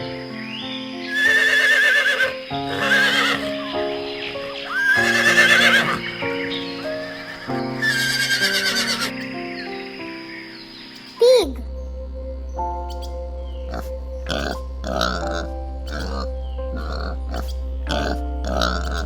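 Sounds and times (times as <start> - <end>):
light background music: 0.0 - 19.0
horse neighing: 1.1 - 3.6, 4.7 - 6.1, 7.8 - 9.1.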